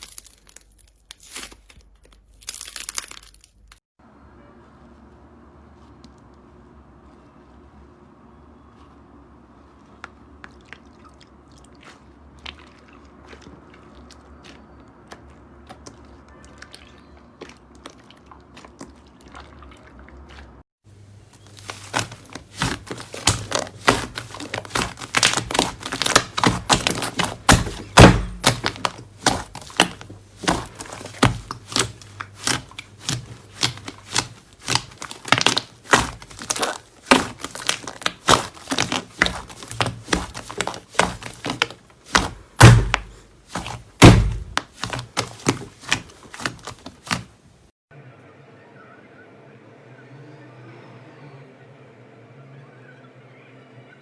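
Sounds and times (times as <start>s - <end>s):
slime clicking and popping: 21.7s - 47.2s.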